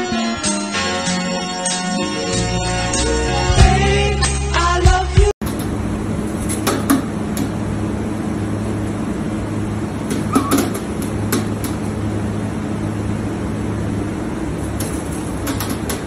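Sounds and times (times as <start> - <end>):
low mechanical hum: 5.4 - 16.0
short clicks and knocks: 6.4 - 7.6, 10.0 - 12.0, 14.7 - 16.0.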